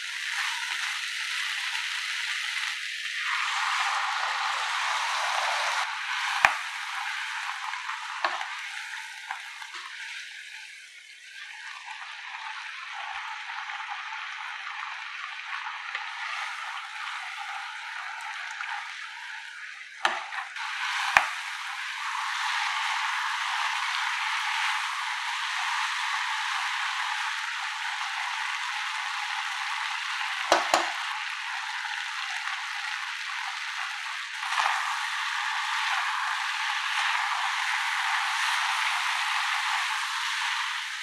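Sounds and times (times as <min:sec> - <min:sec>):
chicken sizzling in a pan: 0:00.0 - 0:41.0
stirring mixture in a pan: 0:03.2 - 0:41.0
utensil knocking on pan: 0:30.5 - 0:31.0.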